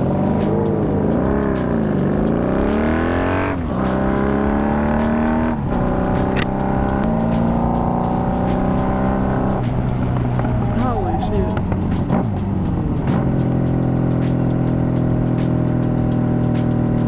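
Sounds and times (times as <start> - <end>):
motorcycle engine shifting gears: 0.0 - 17.0.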